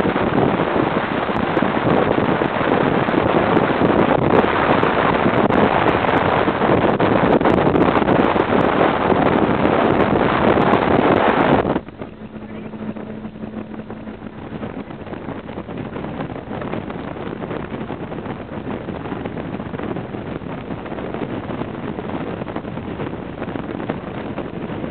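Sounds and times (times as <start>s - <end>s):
wind and road noise in a car: 0.0s - 24.9s
faint low hum: 10.7s - 19.5s.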